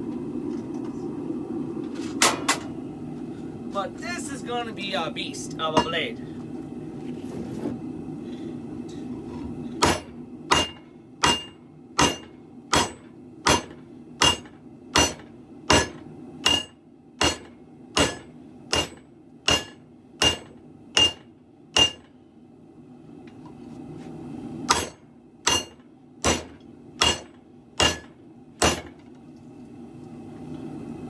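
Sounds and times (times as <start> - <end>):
steady low hum: 0.0 - 31.0
hammer striking steel on anvil: 5.7 - 6.0, 9.8 - 22.1, 24.7 - 29.0.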